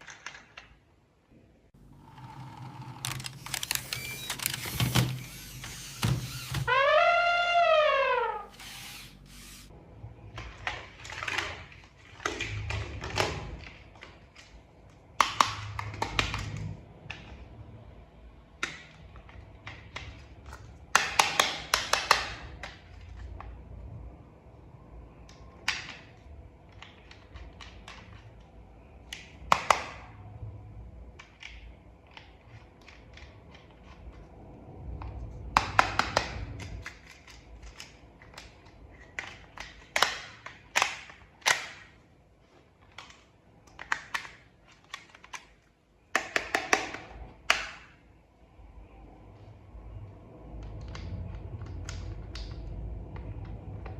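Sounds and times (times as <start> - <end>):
plastic toy parts snapping together: 35.5 - 42.0, 42.9 - 48.0.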